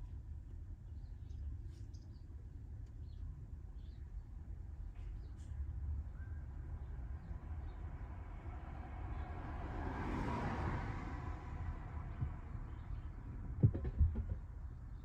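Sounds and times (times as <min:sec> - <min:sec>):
vehicle driving past: 0:08.5 - 0:13.1.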